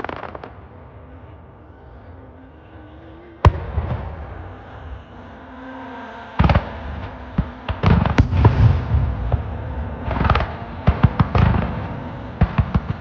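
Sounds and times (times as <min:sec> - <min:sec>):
fireworks bangs: 0:00.0 - 0:00.8, 0:07.8 - 0:13.0
rumbling echo: 0:00.0 - 0:13.0.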